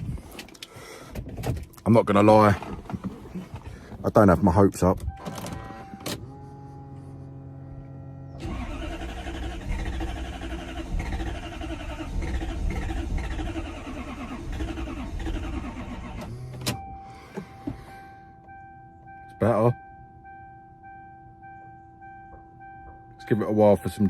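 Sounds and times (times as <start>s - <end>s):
engine cranking on starter: 8.4s - 17.9s.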